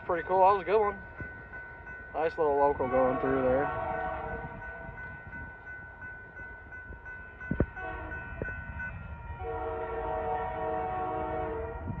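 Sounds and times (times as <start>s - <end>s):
crossing bell ringing: 0.0s - 12.0s
freight train rumble: 0.0s - 12.0s
distant train air horn: 3.0s - 4.6s, 7.8s - 8.3s, 9.4s - 12.0s.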